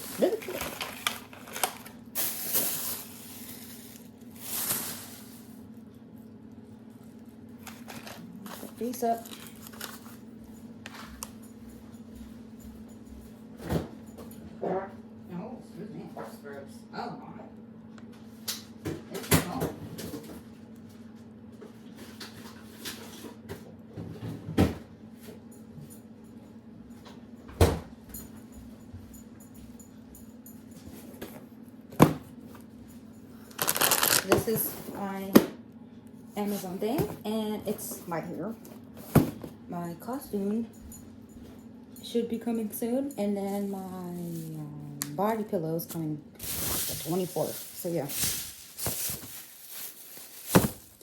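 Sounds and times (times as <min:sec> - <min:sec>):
bags and packaging rustling: 0:00.0 - 0:05.7, 0:07.1 - 0:10.3, 0:33.4 - 0:35.2, 0:46.4 - 0:51.0.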